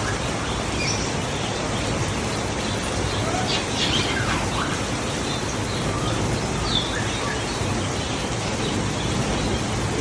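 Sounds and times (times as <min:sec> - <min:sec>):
background rush: 0:00.0 - 0:10.0.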